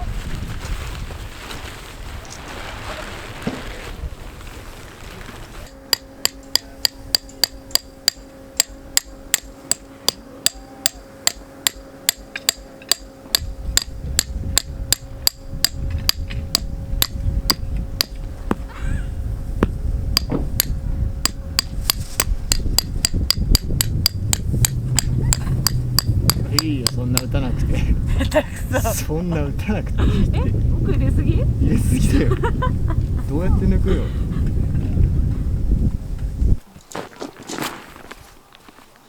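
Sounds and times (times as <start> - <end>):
hammer striking metal tent peg: 5.7 - 18.2, 20.2 - 27.4.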